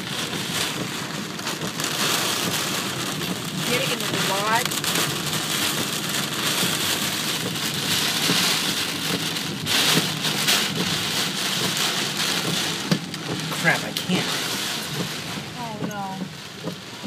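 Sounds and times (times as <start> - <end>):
heavy rain on car windshield: 0.0 - 17.0.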